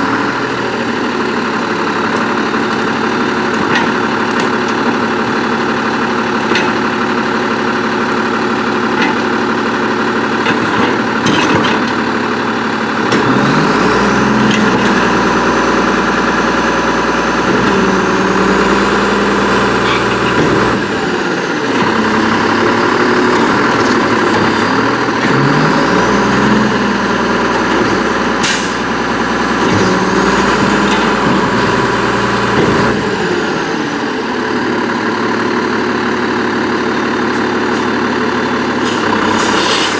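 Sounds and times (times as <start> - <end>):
garbage truck engine revving: 0.0 - 39.9
clanks and knocks: 2.1 - 5.0, 6.4 - 7.2, 8.9 - 9.4, 10.4 - 12.2, 19.6 - 20.8, 21.6 - 25.5, 26.1 - 33.0
hydraulic whine: 8.1 - 34.0, 37.0 - 39.9
sharp air hiss: 38.6 - 39.9.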